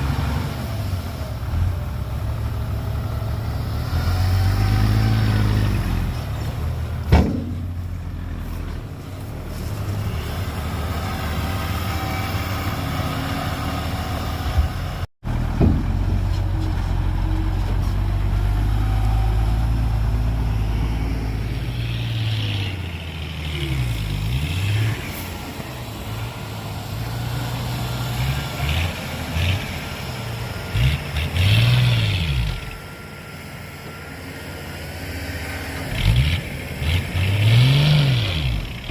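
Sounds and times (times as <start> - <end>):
heavy diesel engines revving: 0.0 - 38.9
sharp knock: 7.1 - 7.7.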